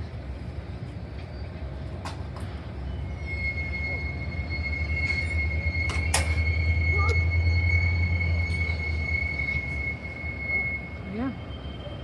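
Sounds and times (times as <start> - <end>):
train rumbling: 0.0 - 12.0
high-pitched wheel squeal: 2.7 - 12.0.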